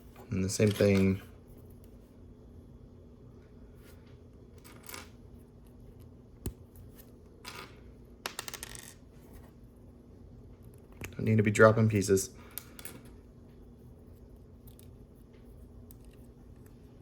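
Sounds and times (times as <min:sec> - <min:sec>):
dropped piece bouncing: 0:07.5 - 0:09.0.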